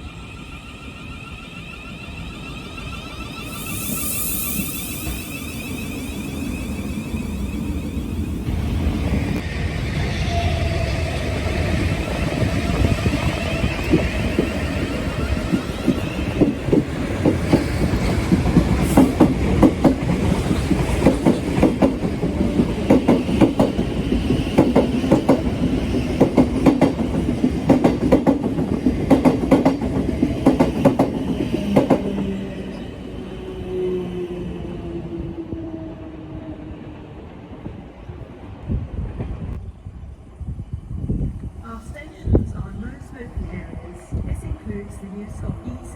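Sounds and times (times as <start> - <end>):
passenger train wheels clattering: 0.1 - 32.8.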